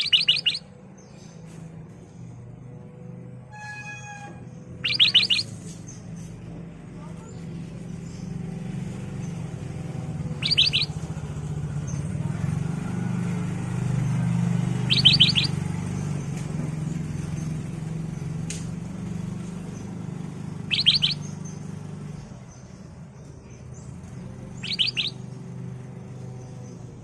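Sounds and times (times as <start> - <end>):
bird calling clear notes: 0.0 - 0.8, 3.5 - 6.0, 9.9 - 11.1, 14.7 - 15.7, 20.6 - 21.8, 24.1 - 25.5.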